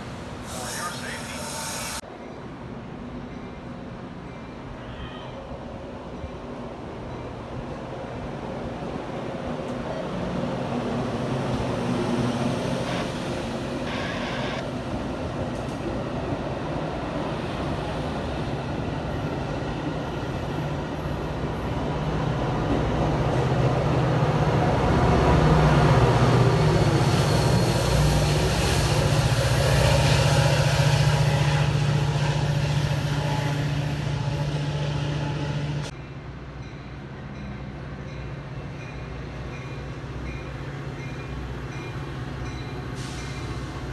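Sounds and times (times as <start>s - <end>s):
locomotive engine drone: 21.4s - 36.3s.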